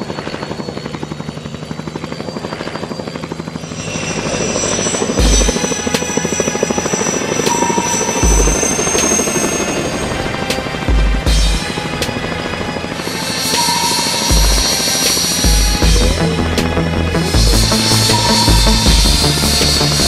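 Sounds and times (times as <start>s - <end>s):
helicopter rotor beating: 0.0s - 20.0s
music with bass drum hits: 5.2s - 5.9s, 8.2s - 8.8s, 10.9s - 12.2s, 14.2s - 20.0s.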